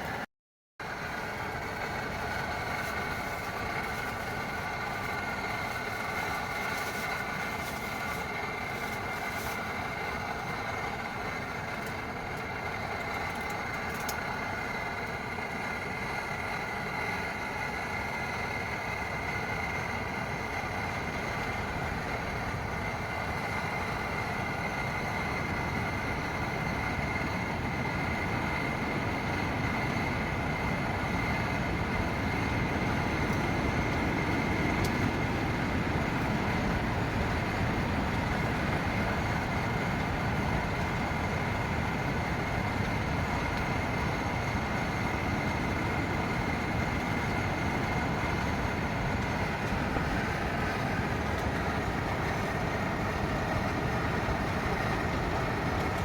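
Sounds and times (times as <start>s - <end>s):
wind: 0.0s - 56.0s
heavy rain on shelter: 29.0s - 56.0s.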